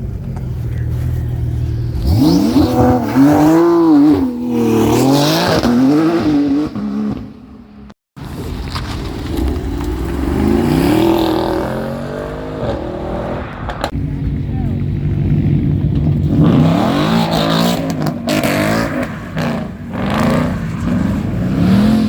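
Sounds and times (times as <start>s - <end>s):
car engine revving: 0.6s - 7.3s, 9.0s - 22.0s.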